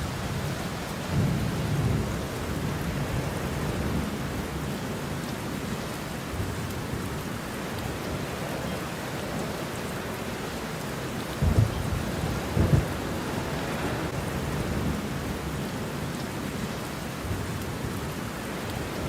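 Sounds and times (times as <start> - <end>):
steady rain falling: 0.0 - 19.0
deep thunder rumbles: 11.3 - 15.9.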